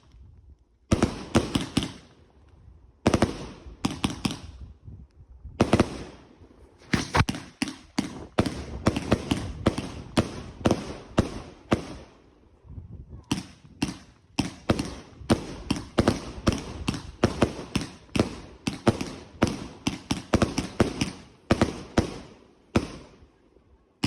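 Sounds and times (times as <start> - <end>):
fireworks banging: 6.8 - 12.0.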